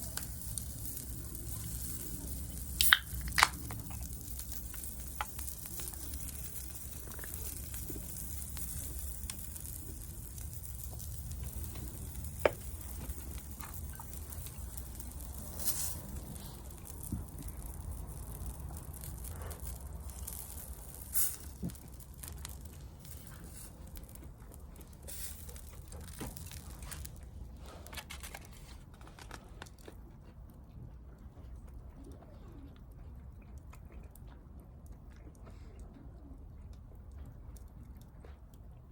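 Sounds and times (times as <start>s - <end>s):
food sizzling over campfire: 0.0s - 27.2s
sharp crackles: 0.0s - 30.0s.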